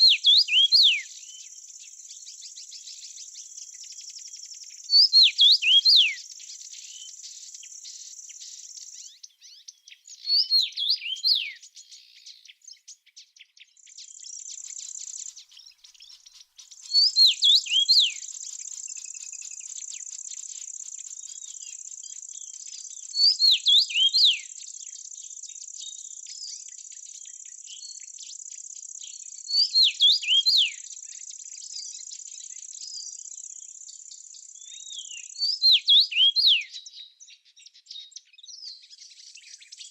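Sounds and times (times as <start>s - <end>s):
songbird whistling: 0.0s - 11.9s, 14.1s - 25.0s, 29.1s - 30.9s, 34.5s - 37.2s.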